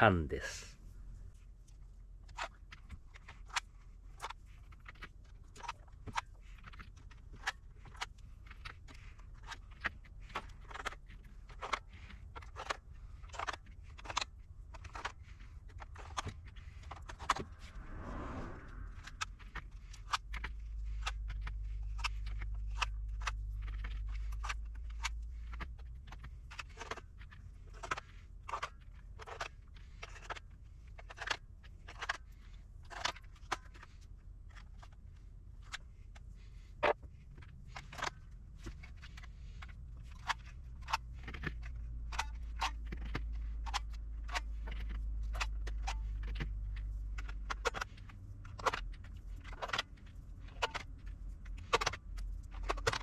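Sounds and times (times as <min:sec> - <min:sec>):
low hum: 0:15.8 - 0:25.5
sharp clicks and light knocks: 0:36.8 - 0:53.0.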